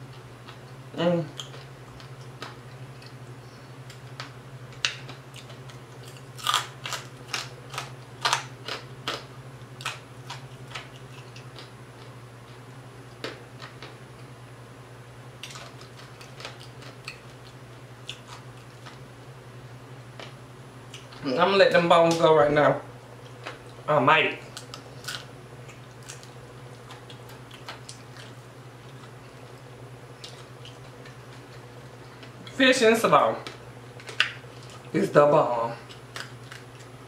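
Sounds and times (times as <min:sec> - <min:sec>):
crunchy chewing and mouth clicks: 0:00.0 - 0:14.3, 0:15.4 - 0:19.1, 0:24.4 - 0:32.6, 0:33.4 - 0:35.0, 0:35.8 - 0:37.0
steady low hum: 0:00.0 - 0:37.0.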